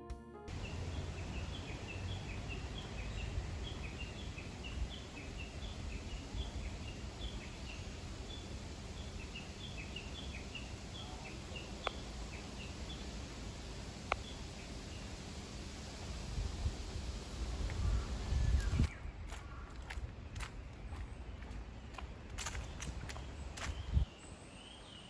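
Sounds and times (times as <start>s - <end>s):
low rumble: 0.5s - 18.9s
small birds chirping: 0.5s - 19.9s.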